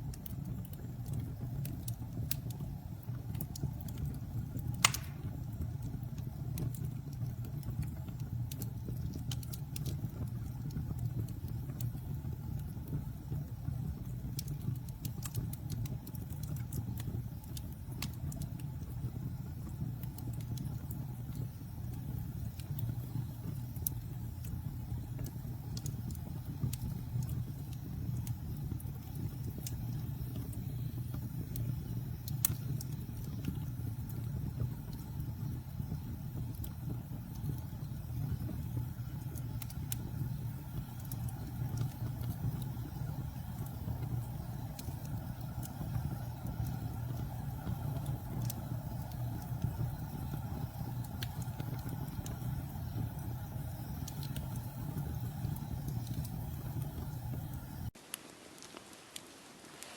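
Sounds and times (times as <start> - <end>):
campfire burning: 0.0 - 59.9
fire crackling and popping: 0.0 - 59.9.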